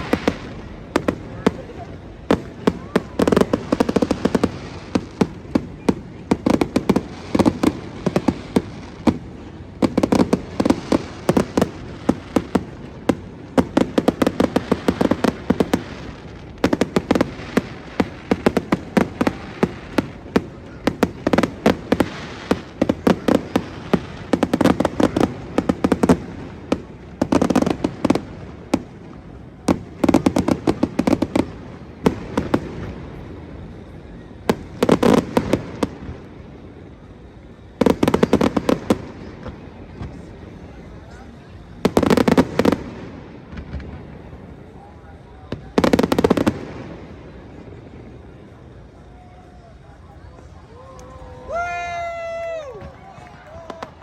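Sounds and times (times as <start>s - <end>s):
fireworks popping and crackling: 0.0s - 54.0s.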